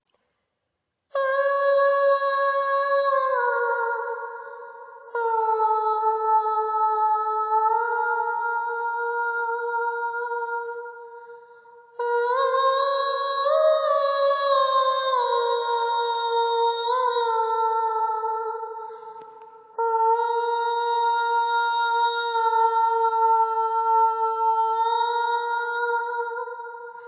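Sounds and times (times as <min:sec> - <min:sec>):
soprano singing wordless notes: 0:01.1 - 0:27.0.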